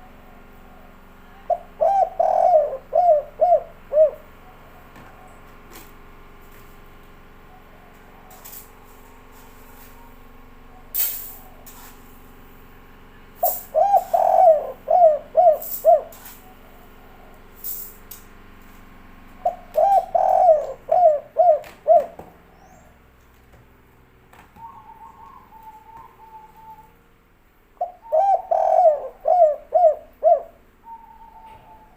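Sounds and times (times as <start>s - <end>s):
dove cooing: 0.0s - 5.8s, 13.4s - 17.5s, 19.4s - 23.0s, 24.5s - 27.1s, 27.8s - 31.9s.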